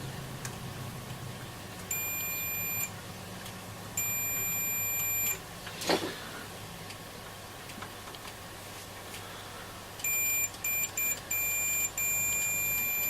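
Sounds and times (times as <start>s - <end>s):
multimeter continuity beeps: 1.9s - 2.9s, 4.0s - 5.4s, 10.0s - 13.0s.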